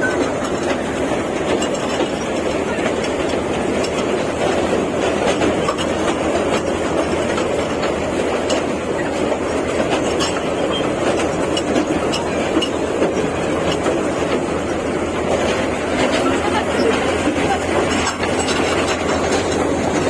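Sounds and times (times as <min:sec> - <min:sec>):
toy train running on track: 0:00.0 - 0:20.0
wheel and track clicks: 0:00.0 - 0:20.0.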